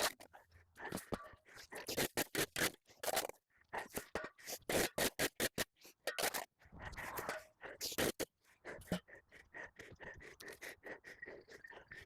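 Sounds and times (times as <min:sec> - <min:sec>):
hand tool scraping: 0:00.0 - 0:09.3.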